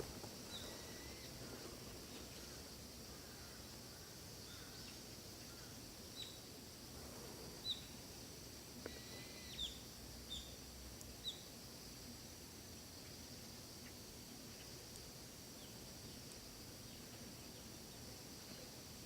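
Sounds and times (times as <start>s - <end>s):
faint forest ambience: 0.0s - 19.0s
steady high hiss: 0.0s - 19.0s
bird chirping: 5.6s - 6.4s, 7.6s - 7.9s, 8.9s - 10.6s, 11.2s - 11.5s.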